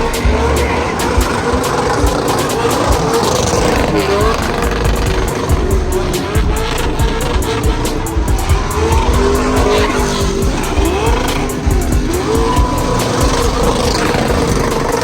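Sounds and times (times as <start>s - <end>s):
tires squealing on pavement: 0.0s - 15.0s
truck engine running hard: 0.0s - 15.0s.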